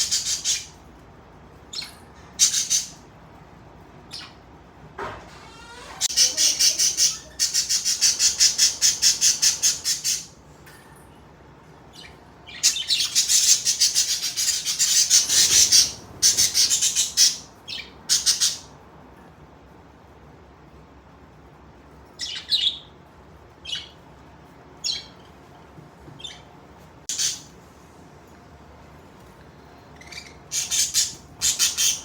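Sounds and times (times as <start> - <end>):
budgerigars calling: 0.0 - 0.7, 2.4 - 3.0, 6.1 - 10.3, 12.5 - 18.7, 27.1 - 27.5, 30.0 - 32.0.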